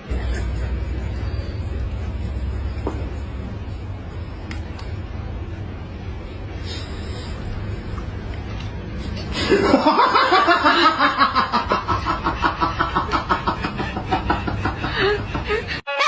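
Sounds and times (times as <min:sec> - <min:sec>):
low steady rumble: 0:00.0 - 0:15.6
person laughing hard: 0:09.2 - 0:16.0.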